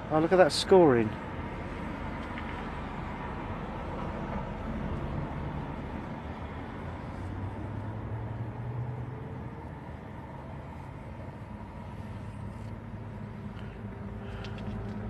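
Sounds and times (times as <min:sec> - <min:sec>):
vehicle engine drone: 0:00.0 - 0:15.0.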